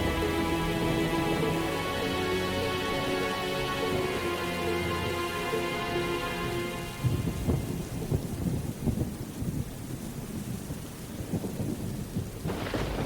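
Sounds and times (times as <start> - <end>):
rain falling: 0.0 - 13.0
thunder rumbling: 6.8 - 13.0
thunderclap: 7.0 - 13.0.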